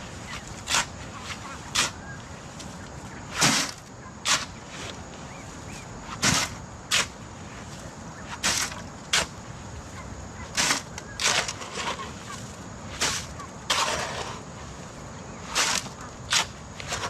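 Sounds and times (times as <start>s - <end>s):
hand tool striking and scraping: 13.0s - 14.4s.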